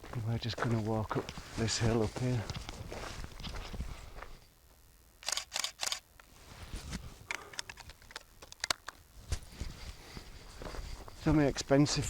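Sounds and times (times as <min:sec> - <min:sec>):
camera clicks: 0:05.2 - 0:06.0.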